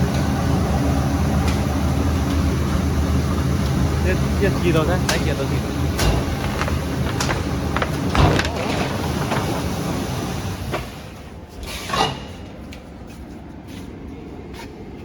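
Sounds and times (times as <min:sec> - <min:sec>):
printing machine running: 0:00.0 - 0:11.2
machine clicks and knocks: 0:05.0 - 0:10.9.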